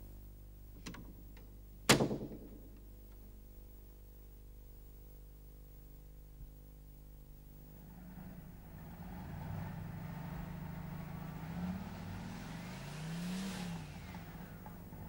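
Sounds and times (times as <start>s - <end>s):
car engine revving: 7.8s - 15.0s.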